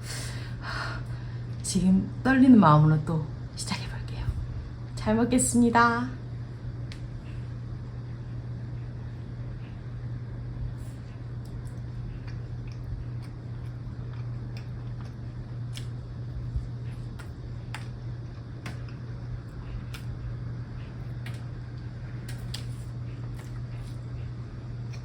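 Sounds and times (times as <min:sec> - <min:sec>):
steady low hum: 0:00.0 - 0:25.0
soft chewing: 0:06.8 - 0:25.0.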